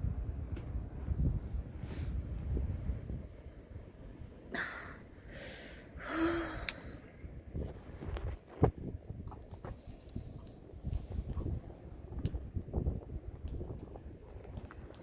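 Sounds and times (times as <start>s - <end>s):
person sighing: 4.5s - 6.9s
person exhaling: 4.5s - 7.0s.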